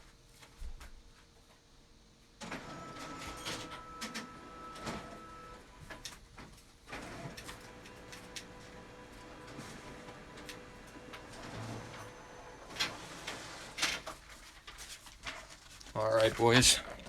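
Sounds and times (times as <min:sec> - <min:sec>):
printer mechanism whining: 0:02.4 - 0:06.1, 0:06.9 - 0:14.2.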